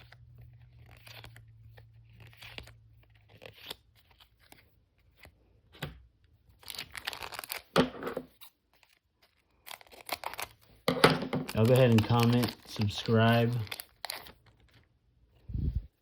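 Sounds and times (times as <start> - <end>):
foil wrapper tearing and crinkling: 0.0 - 5.2, 6.5 - 14.9.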